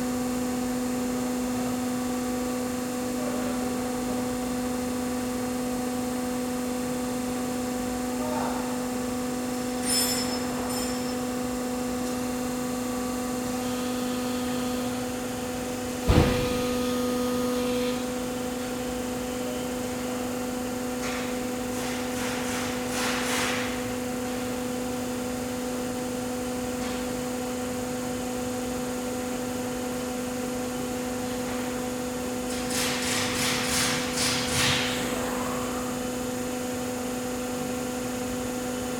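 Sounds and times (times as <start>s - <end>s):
hydraulic pump humming: 8.8s - 21.5s
sharp knock: 16.0s - 16.7s.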